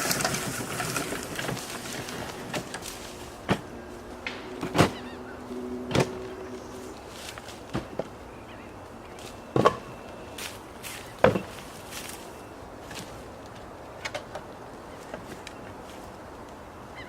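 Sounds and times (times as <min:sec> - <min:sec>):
sharp knocks: 0:03.5 - 0:05.0.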